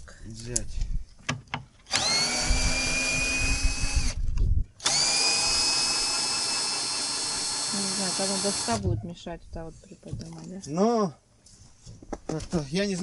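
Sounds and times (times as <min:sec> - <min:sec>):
electric drill whining: 0:01.9 - 0:04.2, 0:04.8 - 0:08.8.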